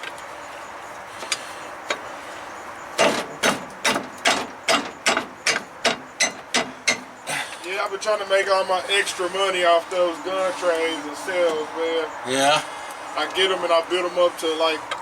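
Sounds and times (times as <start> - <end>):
tool knocking on metal part: 3.0 - 7.1.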